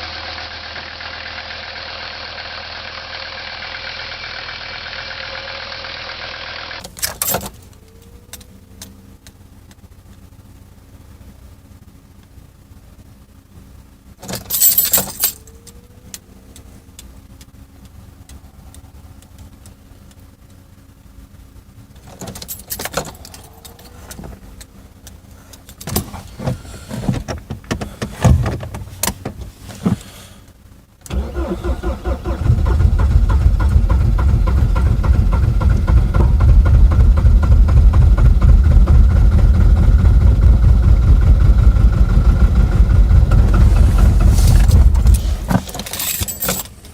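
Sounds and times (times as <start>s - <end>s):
diesel engine cold starting: 30.1s - 46.7s.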